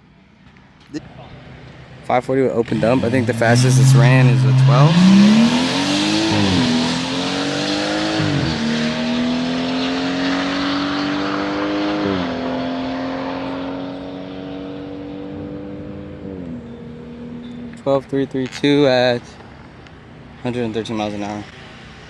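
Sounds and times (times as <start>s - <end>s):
car engine accelerating hard: 1.0s - 18.3s
gear upshifts: 2.0s - 8.8s.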